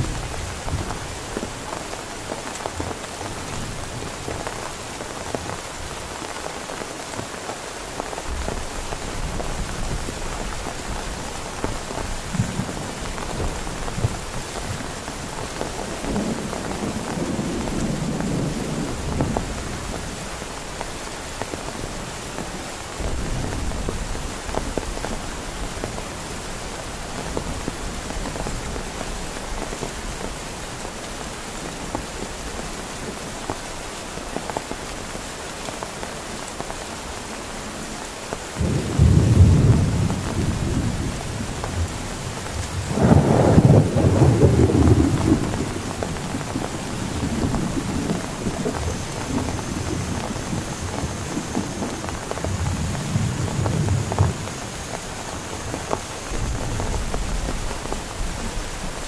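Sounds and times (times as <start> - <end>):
heavy rain: 0.0 - 59.0
thunder rumbling: 8.3 - 20.2, 23.0 - 28.9, 38.6 - 55.0.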